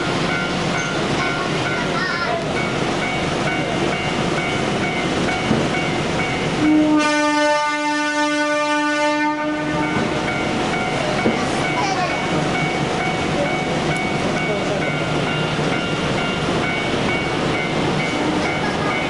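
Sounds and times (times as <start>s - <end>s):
train horn blast: 6.6s - 10.1s.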